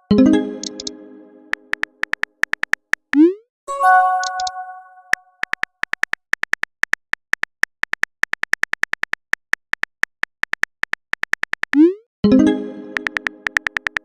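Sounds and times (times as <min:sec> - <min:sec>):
chiming notification tone: 0:00.0 - 0:01.7, 0:03.7 - 0:05.1
phone keyboard key clicks: 0:01.5 - 0:03.1, 0:05.4 - 0:11.8, 0:13.0 - 0:14.0.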